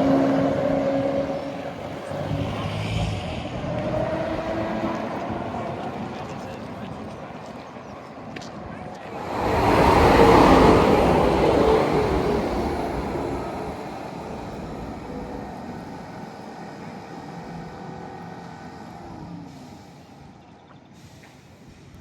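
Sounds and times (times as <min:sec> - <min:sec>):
vehicle passing close by: 0:09.0 - 0:18.8.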